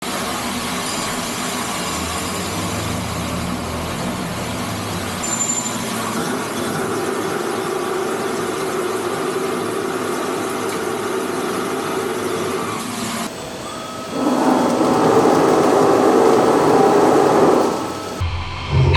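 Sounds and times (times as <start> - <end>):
machine tool running: 0.0 - 18.2
higher machine hum: 0.0 - 18.9
low drone: 14.2 - 18.9.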